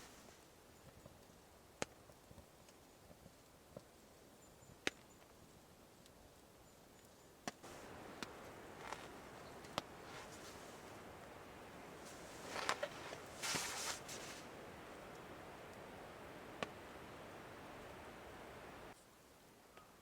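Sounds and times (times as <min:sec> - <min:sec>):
soft rustling: 0:00.0 - 0:00.4, 0:07.6 - 0:15.4
wood stove crackling pops: 0:07.5 - 0:15.8.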